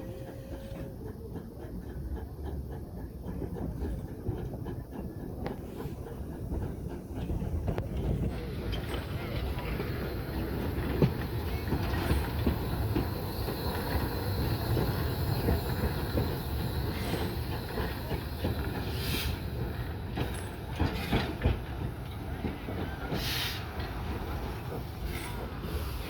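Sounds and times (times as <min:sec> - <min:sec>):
train wheels rumbling on rails: 0:00.0 - 0:26.0
steam hiss bursts: 0:09.0 - 0:21.5, 0:23.0 - 0:26.0.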